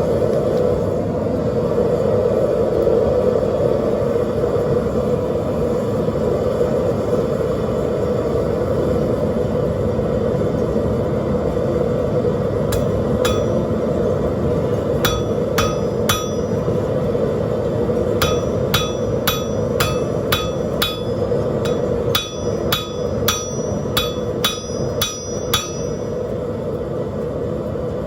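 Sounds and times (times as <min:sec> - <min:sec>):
forge burner roar: 0:00.0 - 0:28.0
hammer striking metal on anvil: 0:12.7 - 0:14.0, 0:14.6 - 0:17.3, 0:17.9 - 0:26.4.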